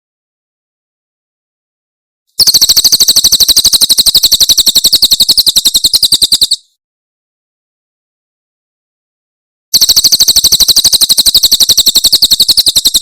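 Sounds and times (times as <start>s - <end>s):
bird rapid high call: 2.4s - 6.8s, 9.8s - 13.0s.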